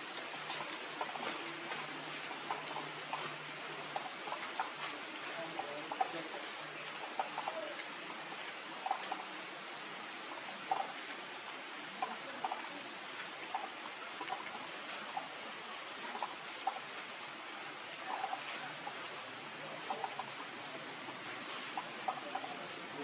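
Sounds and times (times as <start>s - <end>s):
steady rain falling: 0.0s - 23.0s
drips plinking: 0.1s - 8.0s, 8.7s - 9.4s, 10.3s - 11.1s, 11.9s - 17.0s, 17.8s - 23.0s.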